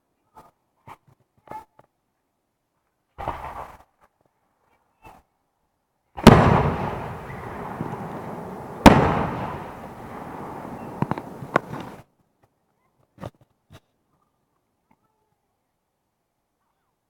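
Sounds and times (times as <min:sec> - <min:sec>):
firework shells bursting with echo: 0:06.2 - 0:12.0
sharp firework cracks: 0:06.2 - 0:12.0.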